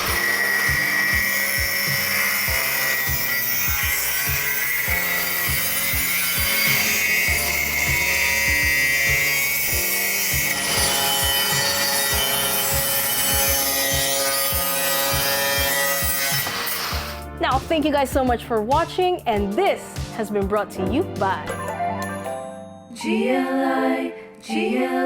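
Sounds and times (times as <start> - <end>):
angle grinder grinding: 0.0 - 17.2
background music with beat: 5.9 - 22.4.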